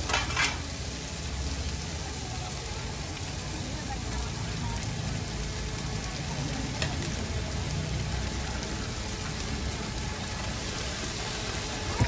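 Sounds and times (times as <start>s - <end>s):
pancake sizzling in hot oil: 0.0s - 12.0s.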